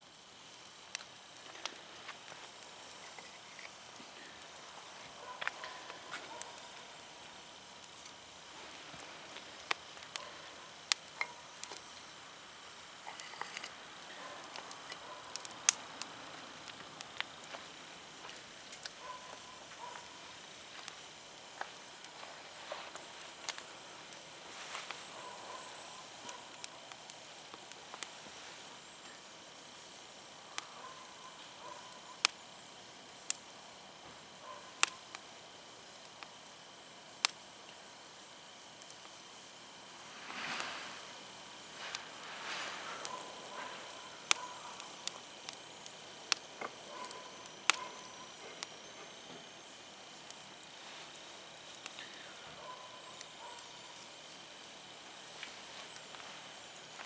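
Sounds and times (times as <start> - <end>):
faint steady hiss: 0.0 - 57.0
firewood crackling and popping: 0.0 - 57.0.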